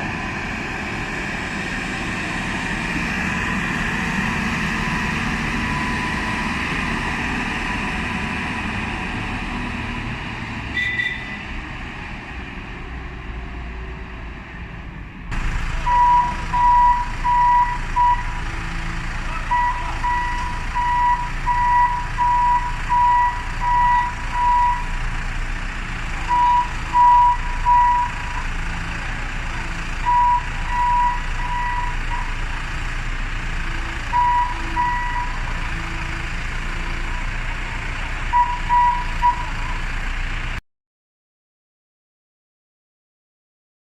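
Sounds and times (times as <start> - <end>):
diesel engine running: 0.0 - 40.6
reversing alarm beeping: 4.8 - 8.2, 15.6 - 18.5, 19.3 - 25.0, 26.2 - 28.4, 30.0 - 32.4, 33.8 - 36.2, 38.3 - 39.8.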